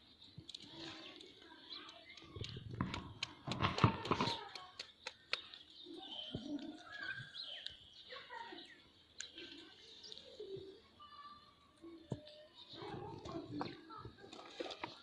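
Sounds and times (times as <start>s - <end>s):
sharp clicks: 0.5s - 5.6s.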